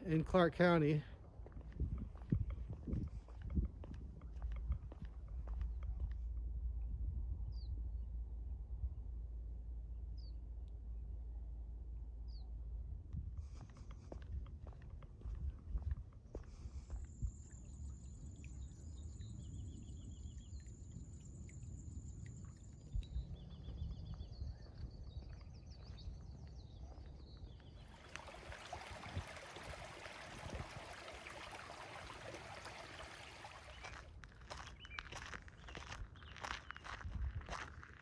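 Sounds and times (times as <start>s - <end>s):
low rumble: 4.6s - 13.5s
small birds chirping: 13.5s - 29.0s, 30.6s - 37.2s
rushing water: 27.8s - 34.0s.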